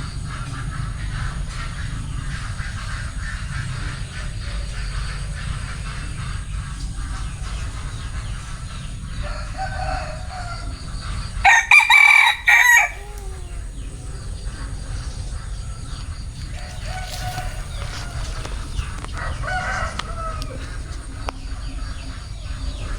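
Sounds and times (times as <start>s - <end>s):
rooster crowing: 9.2s - 10.8s, 11.4s - 13.9s, 16.5s - 18.5s, 19.2s - 20.7s
rooster short calls: 11.5s - 13.7s.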